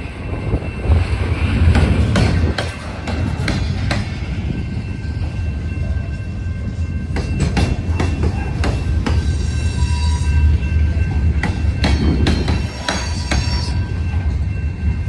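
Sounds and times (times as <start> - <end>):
train low rumble: 0.0 - 15.0
wheels clacking over rail joints: 7.0 - 9.8, 10.8 - 13.7
high wheel squeal: 12.1 - 13.9.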